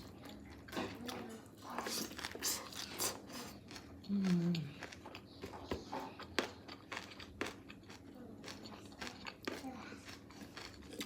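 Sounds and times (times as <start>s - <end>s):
crunches of chewing: 0.0s - 11.0s.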